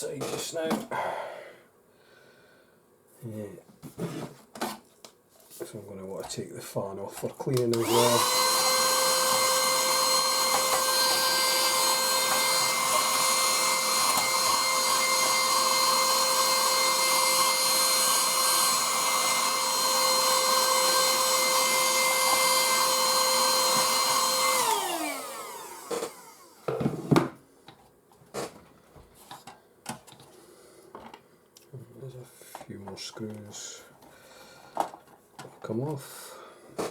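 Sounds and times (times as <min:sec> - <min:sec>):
vacuum motor whining: 0:07.6 - 0:26.7.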